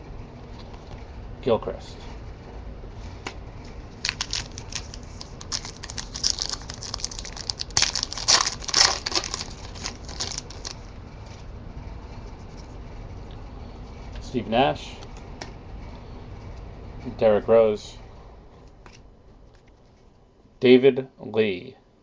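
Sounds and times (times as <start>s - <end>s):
wrapper tearing and crinkling: 4.0s - 10.8s.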